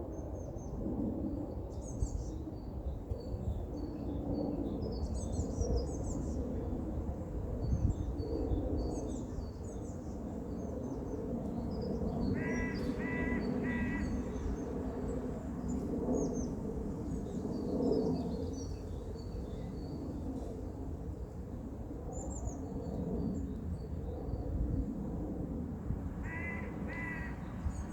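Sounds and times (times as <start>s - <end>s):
crow cawing: 12.4s - 14.4s, 26.2s - 27.5s.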